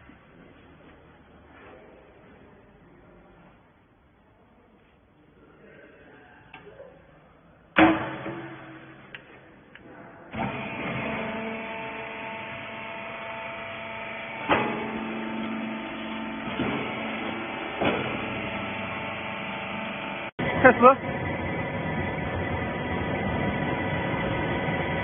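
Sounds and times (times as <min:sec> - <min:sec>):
loud metal clank: 0:07.8 - 0:09.1
motor and hydraulic pump humming: 0:10.3 - 0:25.0.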